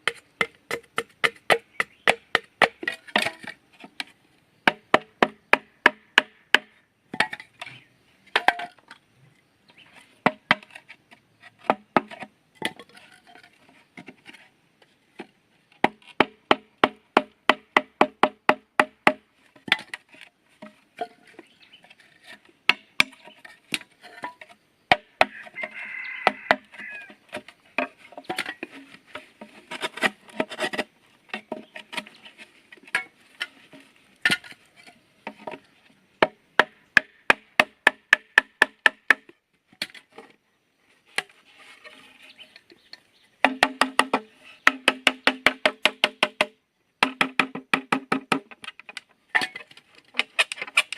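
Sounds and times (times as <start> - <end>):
tool chopping bamboo: 0.0 - 7.3, 15.8 - 19.2, 22.7 - 23.9, 24.9 - 25.6, 36.2 - 39.3, 43.4 - 50.9.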